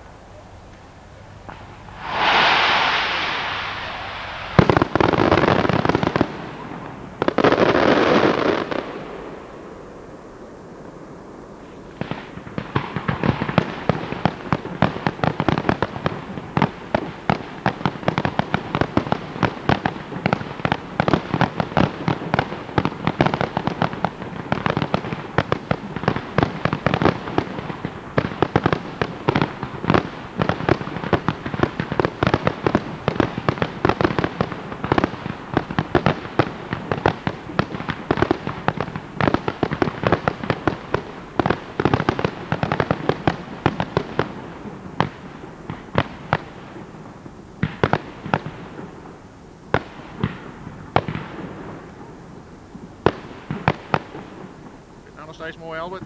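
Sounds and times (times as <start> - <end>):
firework shells bursting: 1.5 - 7.7.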